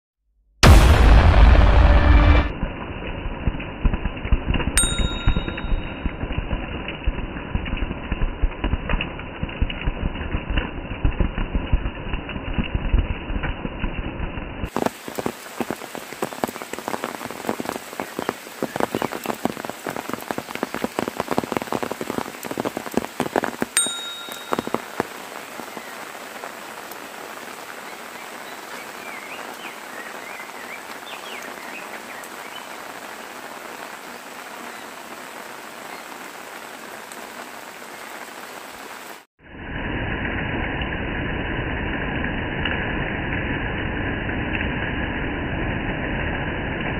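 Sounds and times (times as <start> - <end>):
low rumble: 0.6 - 14.6
rain falling on leaves: 2.6 - 39.3.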